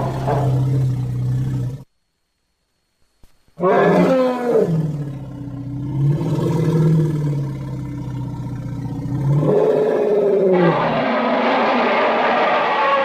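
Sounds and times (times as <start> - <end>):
monster elephant roar: 3.6 - 13.0.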